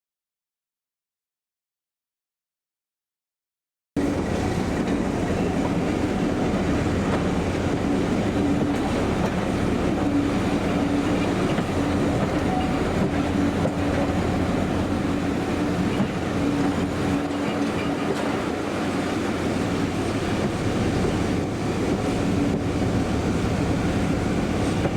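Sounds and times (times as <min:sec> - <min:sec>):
locomotive engine hum: 0:04.0 - 0:24.9.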